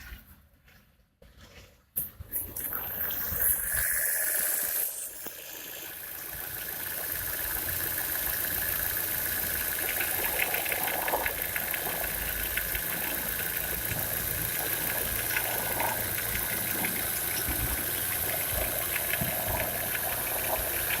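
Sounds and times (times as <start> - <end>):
faint rapid ticking: 5.8 - 21.0.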